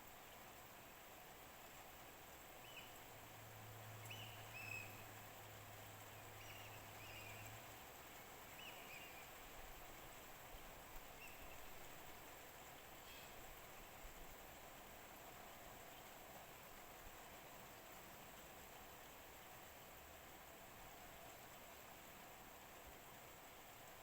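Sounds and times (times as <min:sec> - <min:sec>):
bird chirping: 0:02.6 - 0:03.0, 0:04.0 - 0:05.0, 0:06.4 - 0:07.6, 0:08.5 - 0:09.4.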